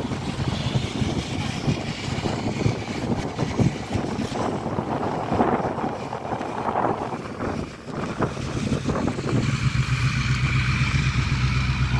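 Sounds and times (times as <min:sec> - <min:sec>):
car engine running: 0:00.0 - 0:11.9
wind buffeting microphone: 0:00.0 - 0:11.9.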